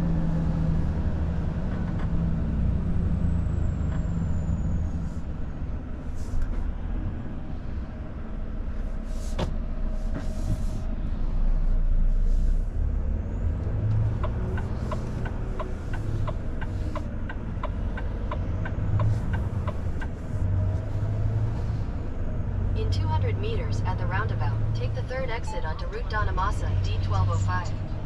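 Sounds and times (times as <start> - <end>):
truck engine rumbling: 0.0 - 28.0.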